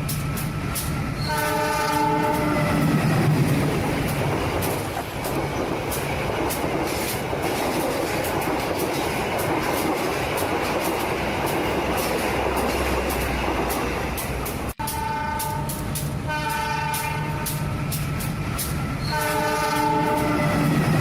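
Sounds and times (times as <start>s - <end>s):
train rumbling: 0.0s - 21.0s
wheels clicking over rails: 2.7s - 14.9s.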